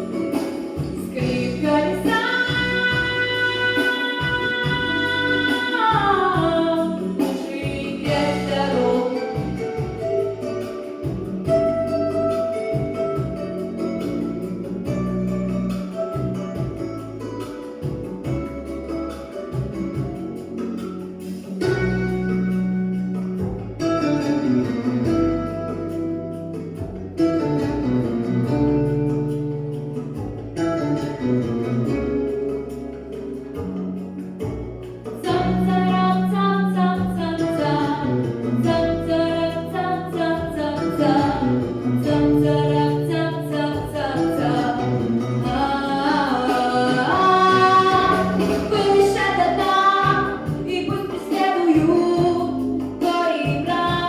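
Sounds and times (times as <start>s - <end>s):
female singer singing pop song: 0.0s - 10.1s, 35.2s - 54.0s
backing track with bass line: 0.0s - 54.0s.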